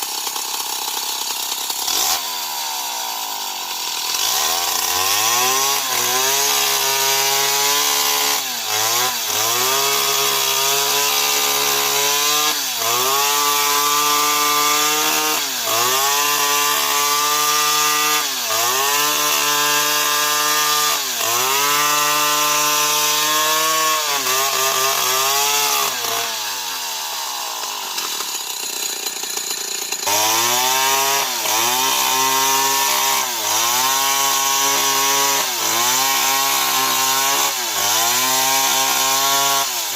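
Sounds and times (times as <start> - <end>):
chainsaw cutting into tree: 0.0 - 39.9.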